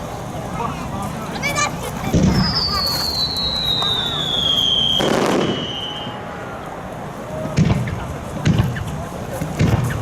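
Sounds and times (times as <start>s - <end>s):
sharp firework bangs: 2.1s - 6.2s, 7.5s - 8.9s, 9.6s - 10.0s
firework burst: 2.1s - 6.4s
firework whistle falling in pitch: 2.3s - 6.2s.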